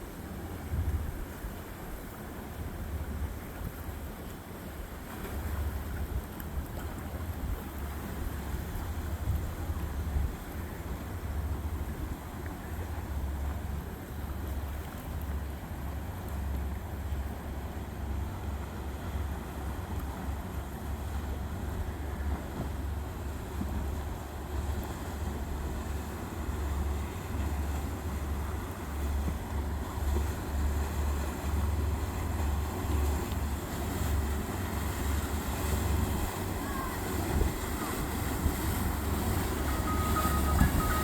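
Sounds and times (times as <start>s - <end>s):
boat engines running: 0.0s - 41.0s
wind buffeting microphone: 33.9s - 41.0s.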